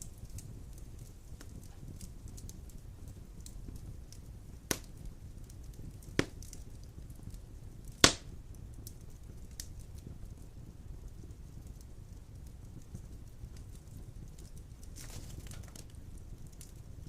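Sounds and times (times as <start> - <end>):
sharp pops of burning logs: 0.0 - 17.0
wood fire rumbling and crackling: 0.0 - 17.0.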